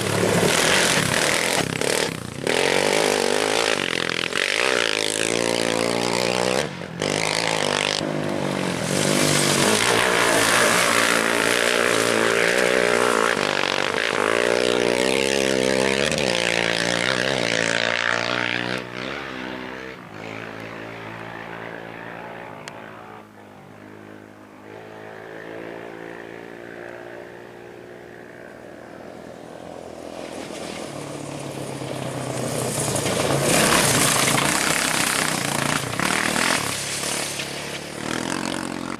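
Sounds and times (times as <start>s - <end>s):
race vehicle engine revving: 0.0s - 23.4s
approaching engine: 0.0s - 38.9s.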